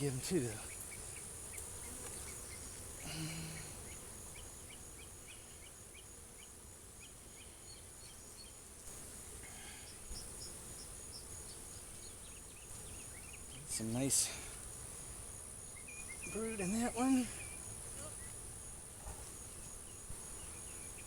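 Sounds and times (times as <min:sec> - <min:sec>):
high-pitched insect drone: 0:01.8 - 0:05.7, 0:15.6 - 0:18.8
short insect chirps: 0:15.3 - 0:21.0.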